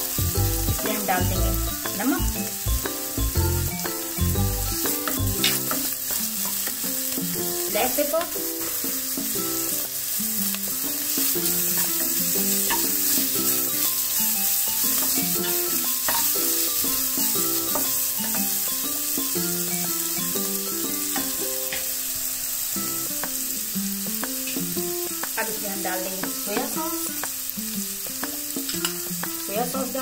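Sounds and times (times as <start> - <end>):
background music: 0.0 - 30.0
vegetables sizzling in oil: 0.0 - 30.0.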